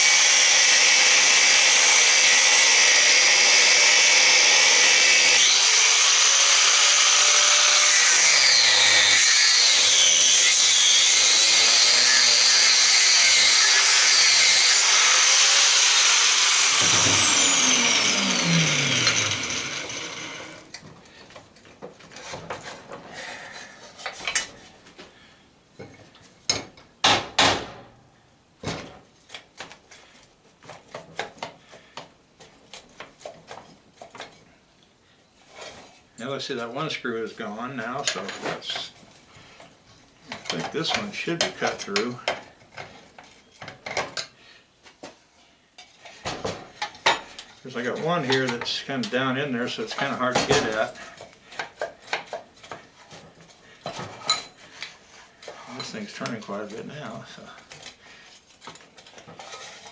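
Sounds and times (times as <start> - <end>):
power cutting tool cutting metal: 0.0 - 20.8.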